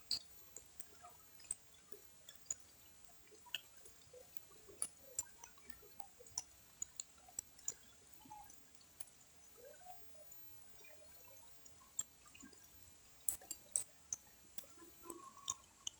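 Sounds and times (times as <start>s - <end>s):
water drops dripping into pond: 13.3s - 15.9s.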